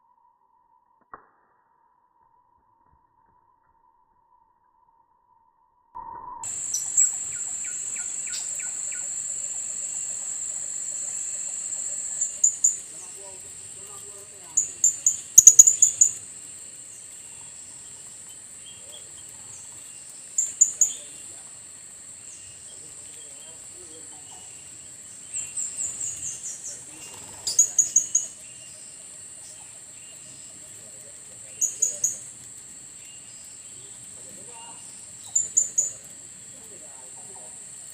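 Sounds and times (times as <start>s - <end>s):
short bird chirps: 6.3s - 12.8s, 14.6s - 16.2s
high-pitched insect drone: 6.4s - 18.0s.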